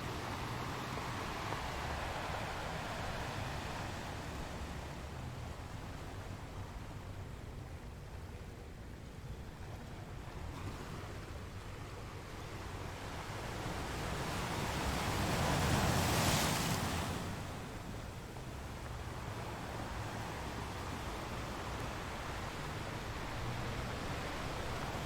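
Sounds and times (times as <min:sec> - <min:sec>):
ocean surf washing on shore: 0:00.0 - 0:07.2, 0:09.9 - 0:25.0.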